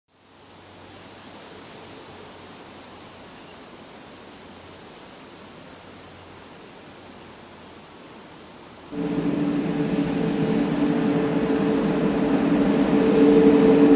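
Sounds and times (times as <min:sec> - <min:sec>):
crickets chirping: 0:09.0 - 0:13.9.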